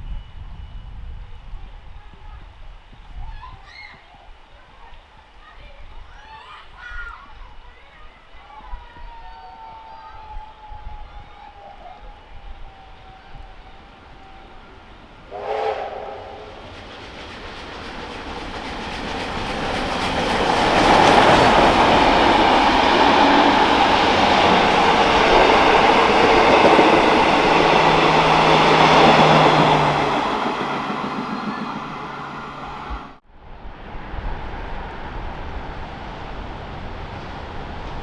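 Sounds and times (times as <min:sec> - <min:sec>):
freight train passing: 0:04.2 - 0:38.0
train horn blast: 0:12.4 - 0:16.6.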